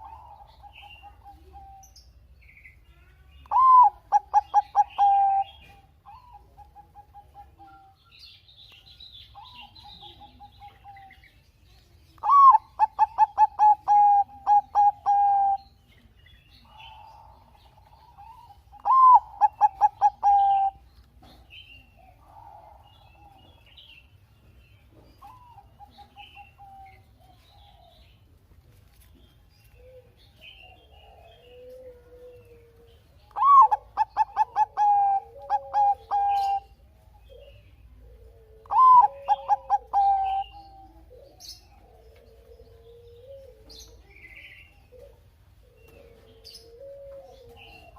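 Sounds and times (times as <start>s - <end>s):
dove cooing: 0.0s - 2.0s, 3.5s - 8.1s, 9.4s - 11.3s, 12.2s - 15.8s, 16.6s - 23.9s, 24.9s - 28.1s, 29.7s - 47.9s
lower wavering coo: 0.0s - 2.0s, 9.4s - 11.1s, 12.2s - 15.8s, 29.7s - 47.9s.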